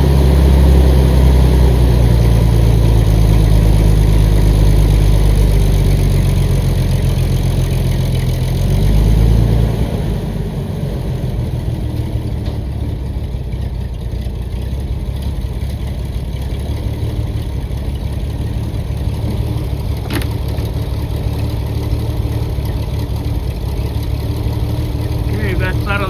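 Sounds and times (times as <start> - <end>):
machine engine idling: 11.3 - 26.0.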